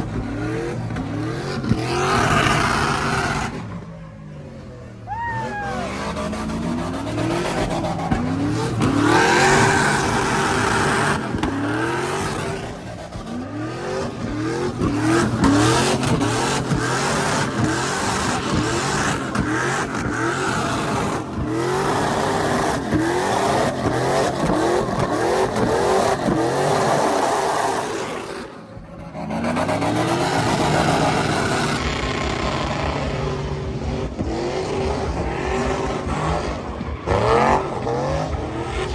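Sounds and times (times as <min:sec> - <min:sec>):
truck engine revving: 0:00.0 - 0:38.9.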